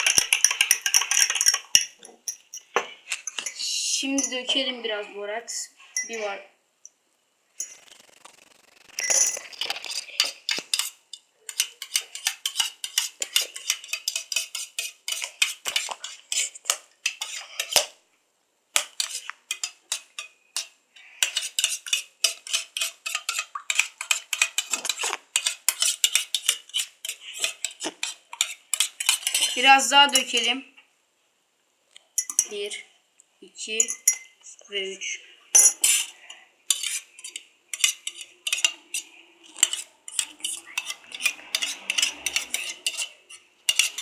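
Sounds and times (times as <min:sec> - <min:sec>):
spoon clinking in container: 0:00.0 - 0:04.6, 0:09.0 - 0:09.5, 0:32.2 - 0:32.6, 0:33.8 - 0:34.4.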